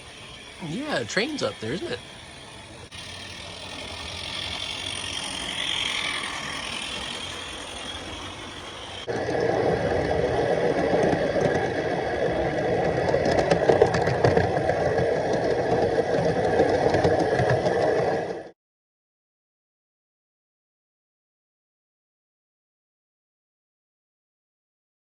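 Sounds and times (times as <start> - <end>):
model locomotive wheels clattering: 0.0 - 9.1, 13.0 - 18.1
steam hissing: 0.0 - 12.7.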